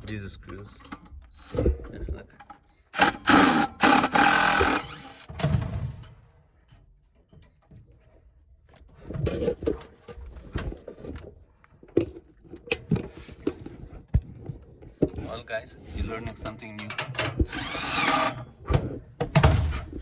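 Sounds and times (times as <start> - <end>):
tools and metal parts clattering: 2.4 - 8.1, 16.3 - 20.0.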